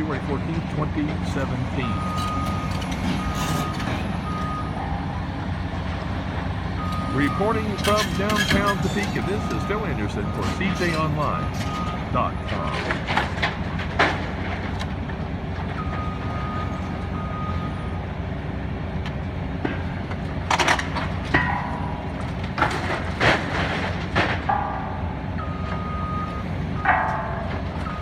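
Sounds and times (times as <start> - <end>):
diesel demolition machinery running: 0.0 - 28.0
debris crashing and clanking: 7.5 - 16.9, 19.7 - 26.0, 26.8 - 28.0.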